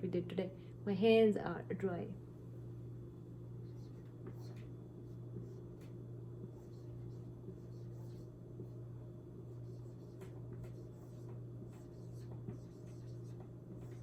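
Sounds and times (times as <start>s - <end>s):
low electrical hum: 0.0s - 14.0s
pen scratching writing: 3.6s - 4.6s, 6.6s - 8.7s, 9.5s - 14.0s.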